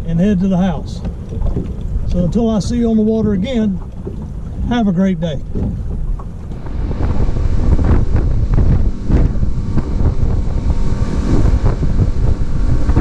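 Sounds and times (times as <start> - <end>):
choppy water against boat hull: 0.0 - 13.0
wind buffeting microphone: 0.0 - 13.0
loud low rumble: 6.3 - 13.0.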